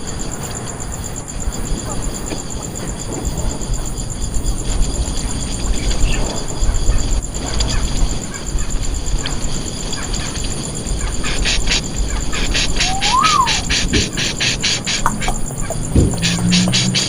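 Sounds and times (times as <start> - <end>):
insect raspy pulses: 0.0 - 17.0
insect high trill: 8.3 - 17.0
rising and falling call: 12.6 - 17.0.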